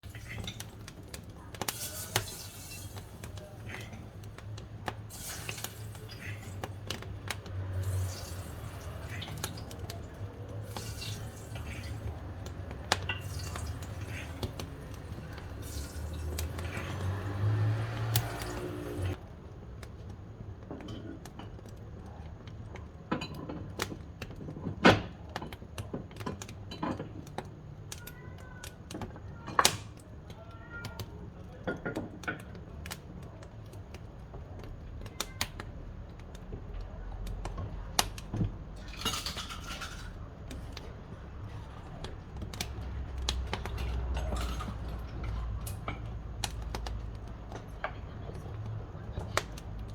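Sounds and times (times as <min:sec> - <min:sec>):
wood fire crackling and popping: 0:00.0 - 0:49.9.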